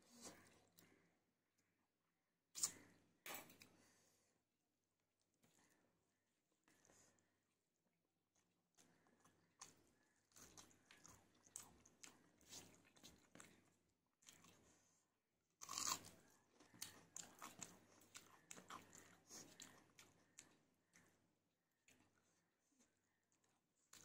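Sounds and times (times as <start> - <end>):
crunchy chewing: 8.8 - 14.8, 15.6 - 21.2.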